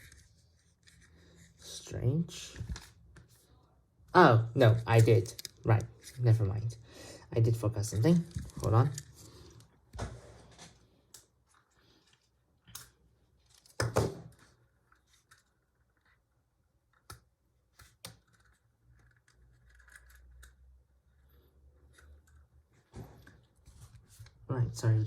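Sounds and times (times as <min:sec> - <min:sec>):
plastic lego pieces clicking: 0:17.8 - 0:20.8.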